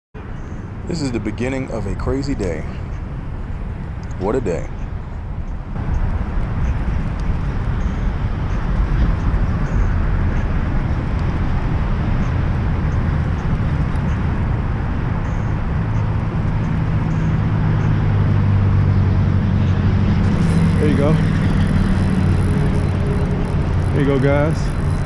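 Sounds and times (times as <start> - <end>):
motor rumbling: 18.6 - 25.0
steady hum: 18.6 - 25.0.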